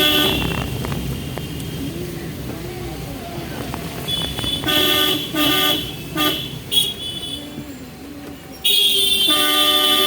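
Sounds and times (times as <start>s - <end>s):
car horn honking: 0.0s - 1.6s, 4.0s - 7.5s, 8.6s - 10.0s
car driving rumble: 0.0s - 8.9s.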